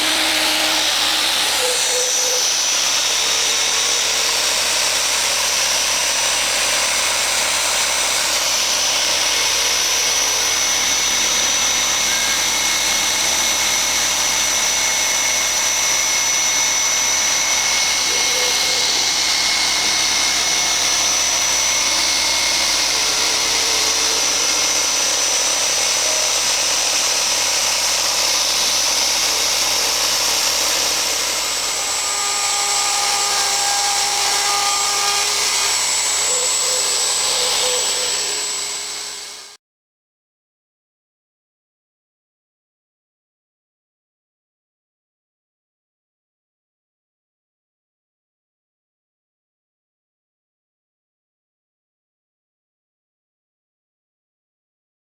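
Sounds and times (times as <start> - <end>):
router spindle whine: 0.0 - 39.6
rush of cutting noise: 0.0 - 39.6.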